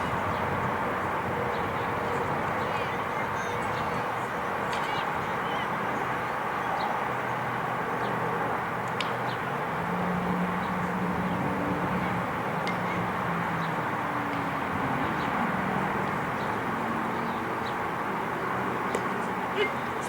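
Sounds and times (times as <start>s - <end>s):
faint distant voices: 1.1s - 7.4s.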